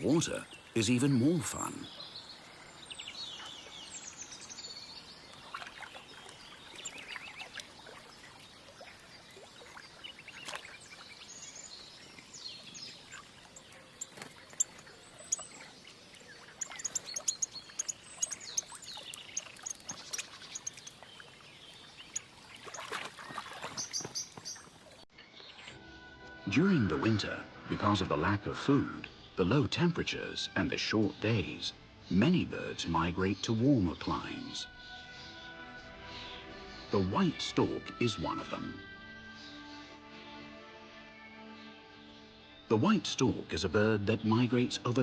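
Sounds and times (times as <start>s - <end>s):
small splashes in shallow water: 2.1s - 25.0s
high thin bird chirps: 5.8s - 7.7s, 8.9s - 24.7s.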